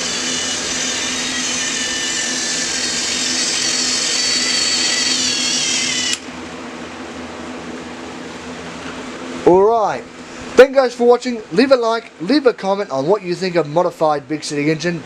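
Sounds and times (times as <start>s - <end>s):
toy train motor whirring: 0.0s - 6.2s.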